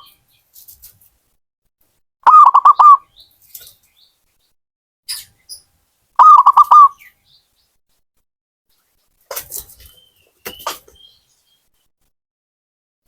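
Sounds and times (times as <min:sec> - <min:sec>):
dove cooing: 0:02.3 - 0:03.0, 0:06.2 - 0:07.0
scratchy short bird calls: 0:02.3 - 0:03.9, 0:05.1 - 0:07.1, 0:08.8 - 0:11.6.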